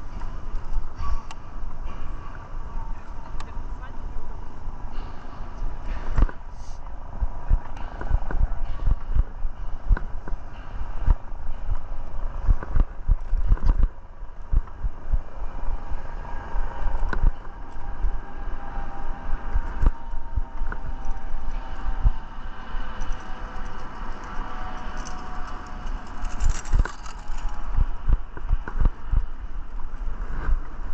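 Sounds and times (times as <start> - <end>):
wind rumble on camera: 0.0 - 30.9
bike knocking and rattling: 16.8 - 29.9.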